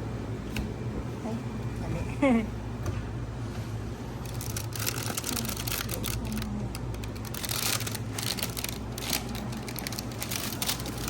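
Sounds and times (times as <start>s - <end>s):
steady low hum: 0.0s - 11.0s
quick light clicks and rustles: 4.2s - 11.0s.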